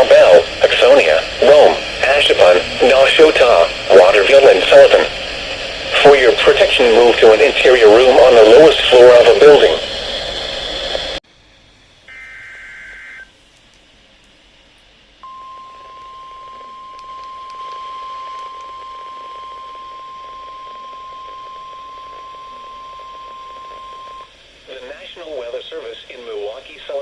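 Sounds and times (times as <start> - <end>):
steady warning alarm tone: 12.0 - 13.4, 15.2 - 24.3
warbling digital data tones: 12.1 - 13.3.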